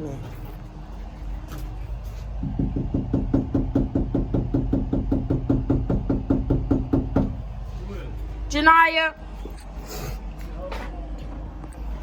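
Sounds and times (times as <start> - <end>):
fist pounding on door: 2.4 - 7.5.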